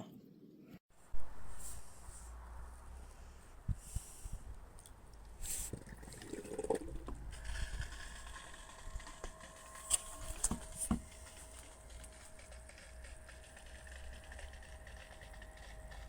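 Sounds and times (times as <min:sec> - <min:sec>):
pool vacuum motor whine: 0:07.3 - 0:16.0.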